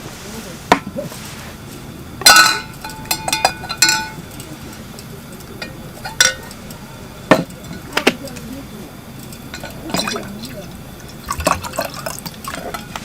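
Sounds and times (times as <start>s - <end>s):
tableware and utensils clinking: 2.2s - 8.4s, 9.2s - 13.0s.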